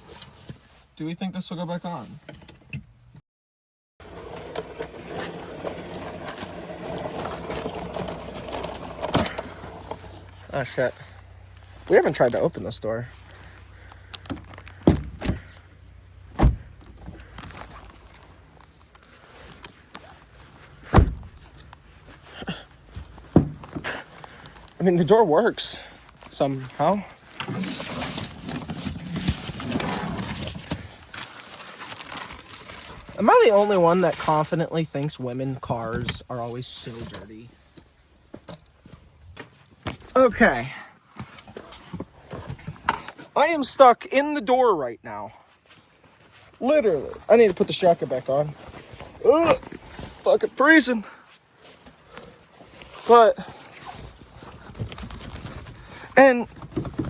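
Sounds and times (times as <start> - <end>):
knocks and clicks handling car door: 20.9 - 21.3.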